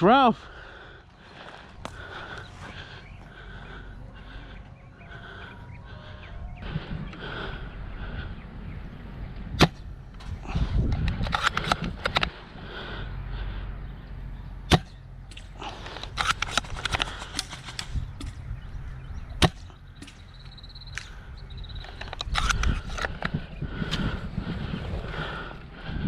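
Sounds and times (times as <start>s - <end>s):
rapid clicking airsoft shots: 16.1s - 18.4s.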